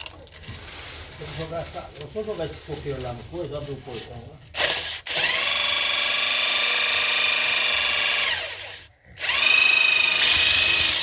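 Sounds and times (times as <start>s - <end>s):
electric drill whining: 4.6s - 11.0s.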